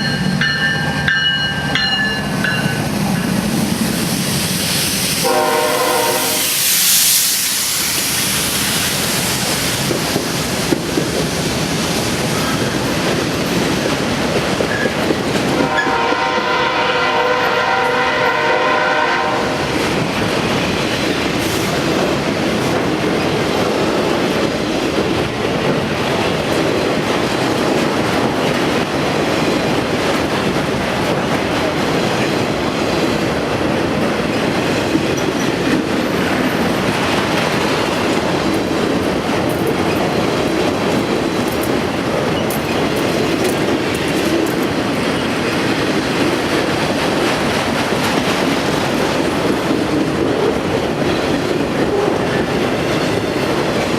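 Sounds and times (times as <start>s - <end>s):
train wheels rumbling on rail: 0.0s - 53.9s
wheels clicking over rail joints: 19.8s - 53.9s.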